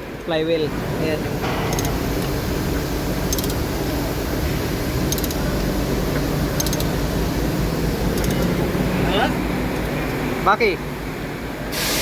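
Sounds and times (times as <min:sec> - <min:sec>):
low mechanical rumble: 0:00.0 - 0:11.8
rapid high clicks: 0:03.3 - 0:03.6, 0:05.0 - 0:07.0.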